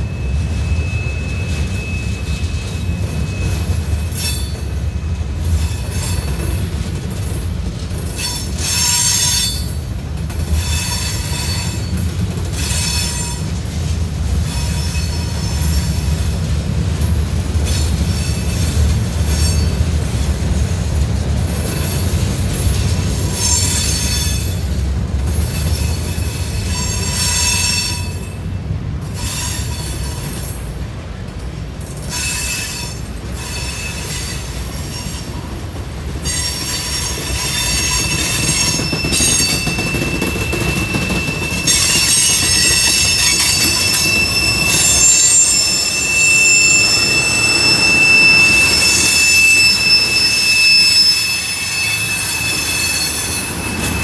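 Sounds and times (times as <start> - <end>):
high-pitched wheel squeal: 0.0 - 6.4, 36.2 - 54.0
freight train rumbling past: 0.0 - 54.0.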